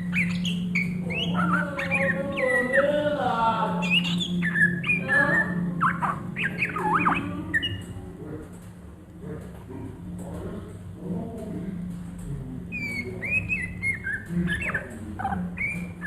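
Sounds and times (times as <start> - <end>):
bird singing varied song: 0.0 - 8.1, 12.7 - 16.0
steady low hum: 0.0 - 16.0.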